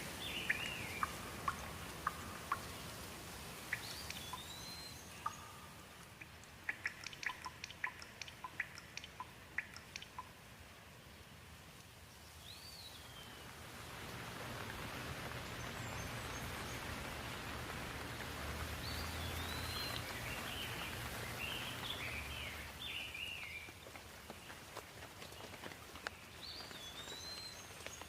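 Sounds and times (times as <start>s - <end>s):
steady rain falling: 0.0s - 28.0s
bird chirping and warbling: 0.2s - 2.8s, 3.7s - 10.3s.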